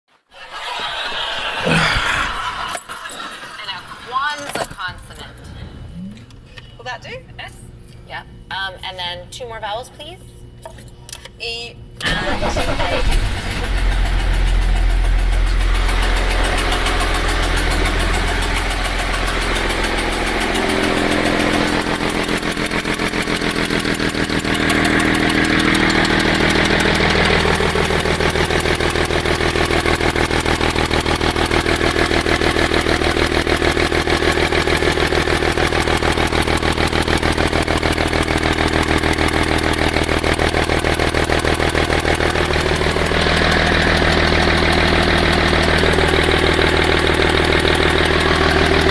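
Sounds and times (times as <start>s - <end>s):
diesel engine idling: 12.0s - 48.9s.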